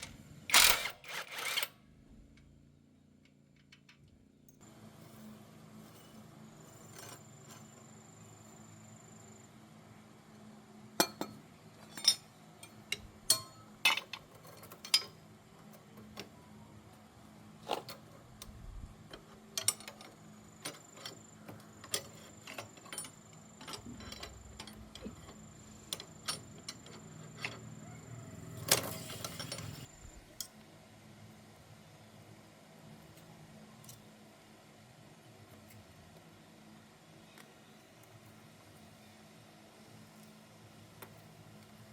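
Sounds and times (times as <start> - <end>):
low steady hum: 1.8 - 41.9
metal tools clinking: 11.0 - 15.2, 21.8 - 27.7, 28.6 - 30.2.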